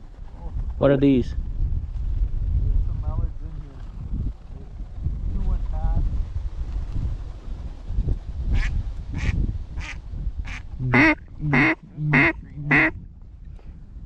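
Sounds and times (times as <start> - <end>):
low wind rumble: 0.0 - 14.0
duck quacking: 8.6 - 12.9.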